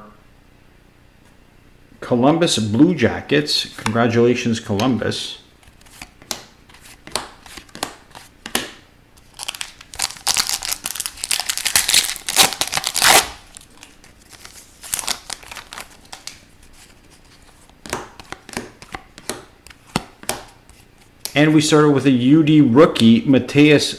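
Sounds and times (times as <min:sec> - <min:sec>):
cards rustling and clicking: 0:03.7 - 0:21.4
foil wrapper tearing and crinkling: 0:09.2 - 0:16.5.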